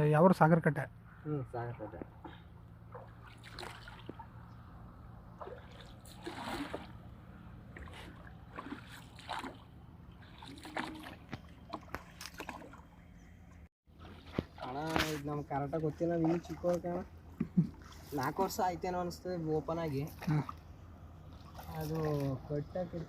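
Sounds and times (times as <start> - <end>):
water splashing against rowboat: 2.0 - 4.6, 5.3 - 18.7, 21.2 - 22.6.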